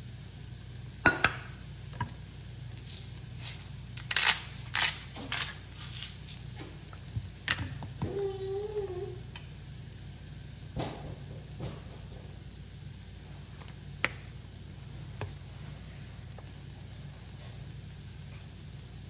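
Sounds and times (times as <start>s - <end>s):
steady hum-like tone: 0.0s - 19.0s
spice shaker shaking: 2.8s - 6.6s.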